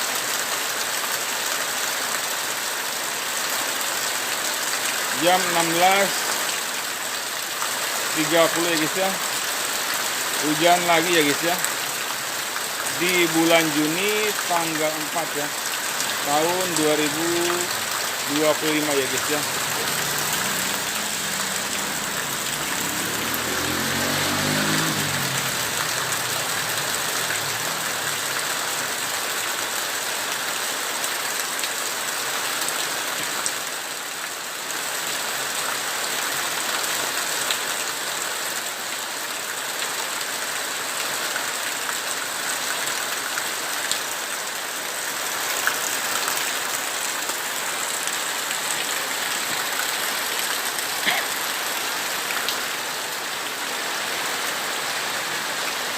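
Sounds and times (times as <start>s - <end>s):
heavy rain pouring: 0.0s - 55.9s
engine rising in pitch: 19.2s - 28.3s.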